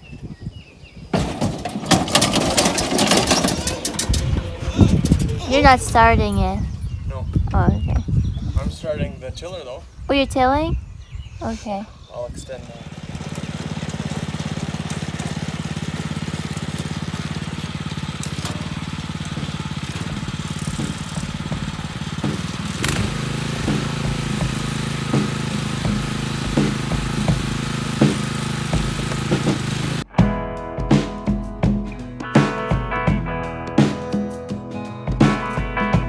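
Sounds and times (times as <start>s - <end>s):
tines knocking on ground: 1.2s - 4.4s, 12.9s - 30.0s
garden tiller engine running: 1.2s - 6.6s, 12.2s - 30.1s.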